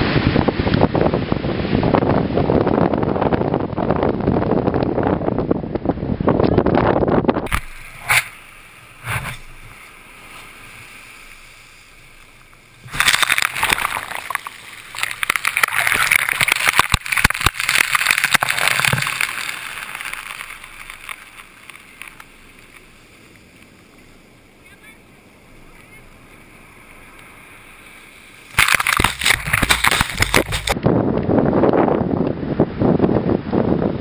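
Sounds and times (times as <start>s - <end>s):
wind buffeting microphone: 0.0s - 21.6s, 28.5s - 34.0s
surf breaking on shore: 7.5s - 30.8s
wave crashing: 7.5s - 30.8s.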